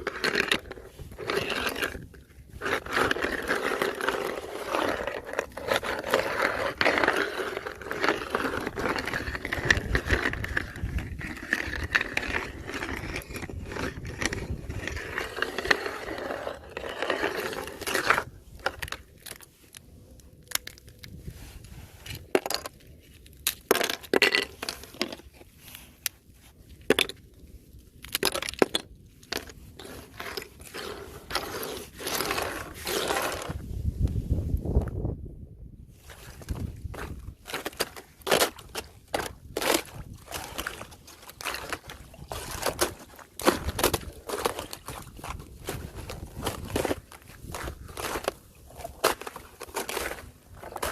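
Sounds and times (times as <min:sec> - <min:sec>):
ice cracking and clinking: 0:00.0 - 0:19.7, 0:28.0 - 0:33.6, 0:36.0 - 0:50.9
ice being crunched and scraped: 0:00.0 - 0:35.1, 0:35.9 - 0:50.9.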